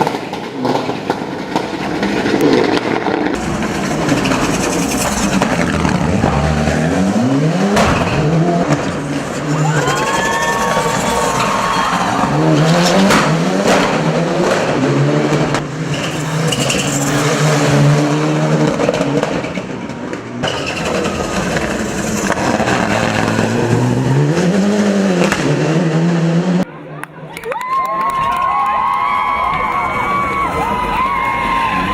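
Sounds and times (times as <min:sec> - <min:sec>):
turbocharged car engine revving: 0:00.0 - 0:26.6
tyres squealing: 0:09.0 - 0:13.0, 0:15.6 - 0:18.2.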